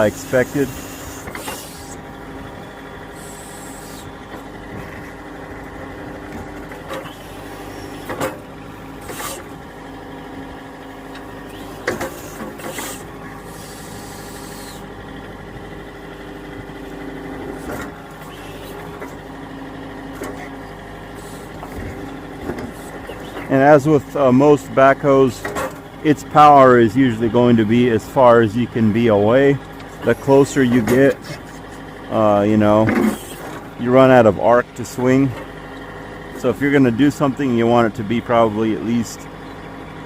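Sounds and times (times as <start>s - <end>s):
hydraulic hissing: 0.0s - 2.1s, 3.0s - 4.6s, 6.8s - 9.6s, 11.3s - 15.0s, 17.4s - 19.2s, 20.2s - 23.7s, 32.9s - 33.6s
tractor diesel engine running: 0.0s - 40.0s.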